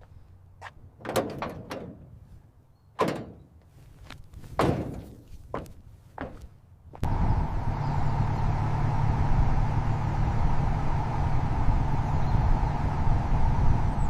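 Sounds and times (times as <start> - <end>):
truck engine running: 5.6 - 14.0.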